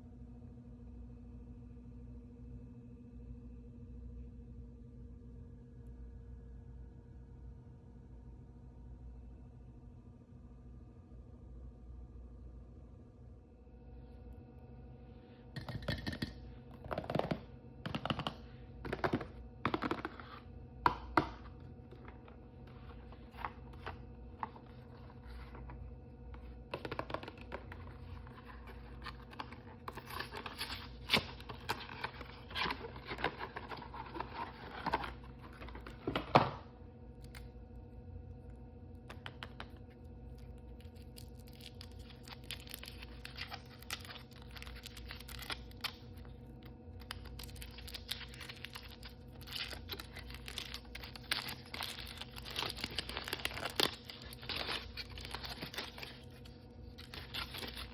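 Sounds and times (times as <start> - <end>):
faint steady hum: 0.0 - 57.9
plastic packaging crinkling and tearing: 21.9 - 25.8, 26.4 - 36.3, 39.1 - 57.9.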